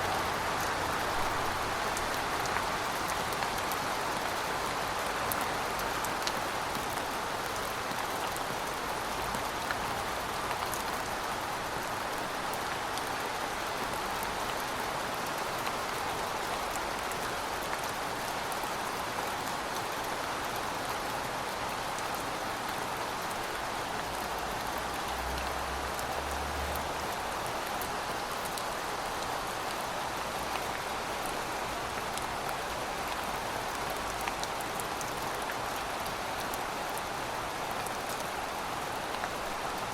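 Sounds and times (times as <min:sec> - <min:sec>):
rain falling on pavement: 0:00.0 - 0:39.9.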